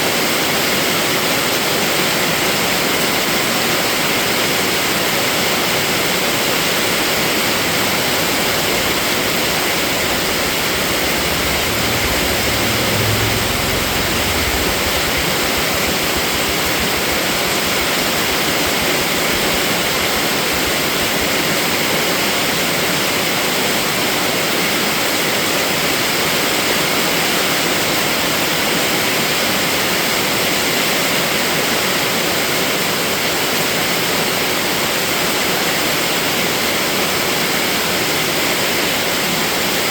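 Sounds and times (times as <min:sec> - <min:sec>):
heavy rain falling: 0:05.8 - 0:21.9
low rumble: 0:07.2 - 0:21.2.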